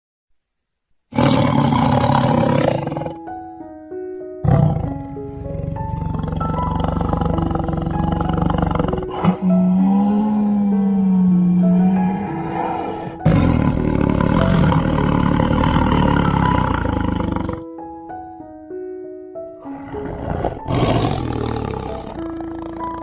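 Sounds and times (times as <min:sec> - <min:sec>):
animal roar: 0:01.1 - 0:03.2, 0:04.4 - 0:17.7, 0:19.6 - 0:23.0
melody of held notes: 0:02.6 - 0:23.0.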